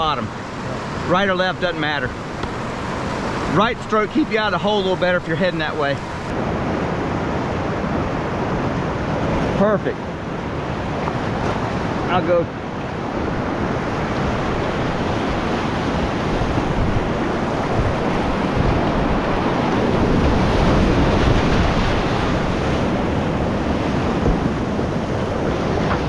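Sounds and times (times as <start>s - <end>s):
whitewater rapids rushing: 0.0s - 26.0s
wind noise on microphone: 6.1s - 26.0s.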